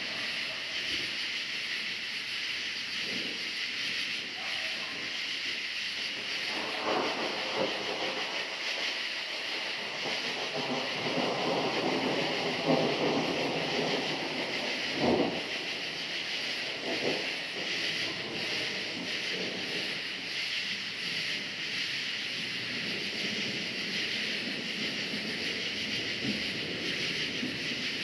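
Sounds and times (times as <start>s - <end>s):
crickets chirping: 0.0s - 28.0s
thunder rumbling: 6.2s - 28.0s.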